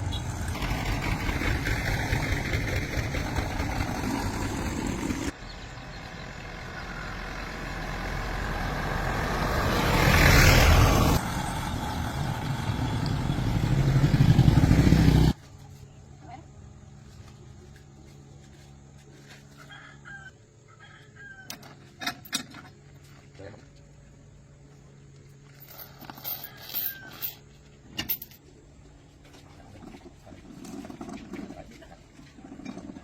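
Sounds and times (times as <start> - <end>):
engine running: 0.0 - 15.4.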